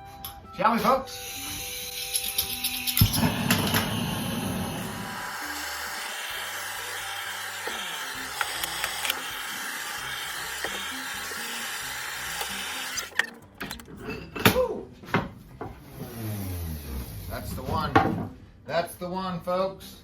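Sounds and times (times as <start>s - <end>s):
torch flame hissing: 2.7s - 13.2s.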